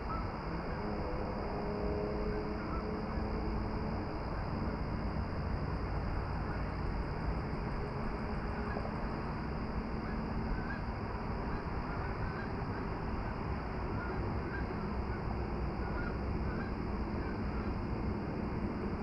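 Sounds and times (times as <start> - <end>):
rushing outdoor noise: 0.0 - 19.0
faint bird calls: 10.0 - 12.8, 13.8 - 15.2, 15.8 - 17.7.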